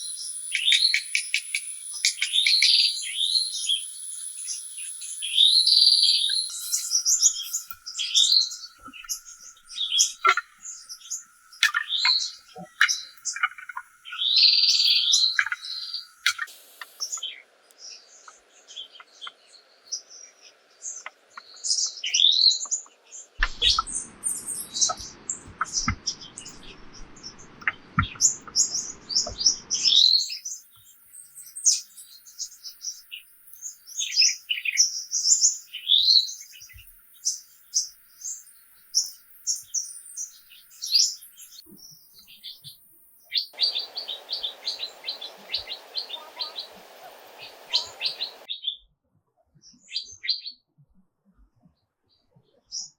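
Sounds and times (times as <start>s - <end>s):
birds chirping and singing: 0.0s - 48.5s
low even rushing noise: 43.6s - 48.5s.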